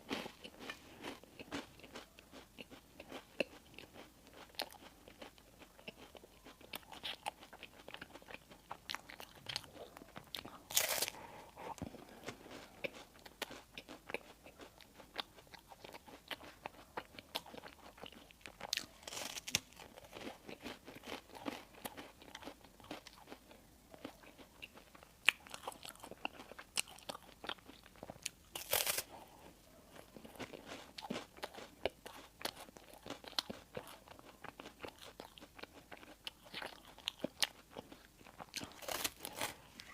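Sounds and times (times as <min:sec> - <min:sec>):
crunching bites of bread: 0:00.1 - 0:11.2, 0:11.8 - 0:29.2, 0:30.1 - 0:39.9
wet chewing: 0:00.1 - 0:39.9.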